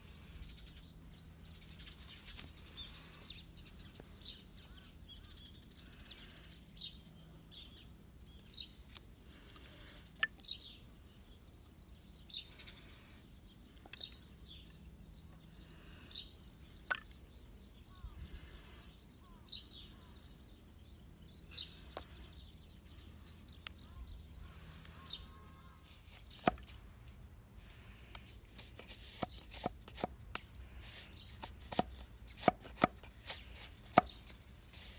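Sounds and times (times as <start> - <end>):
birds calling: 14.0 - 34.9.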